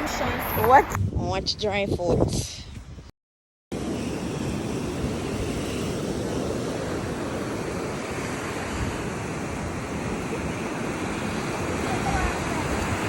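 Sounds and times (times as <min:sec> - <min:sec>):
wind buffeting microphone: 0:00.0 - 0:03.1, 0:04.1 - 0:13.0
surf washing on shore: 0:03.8 - 0:13.0.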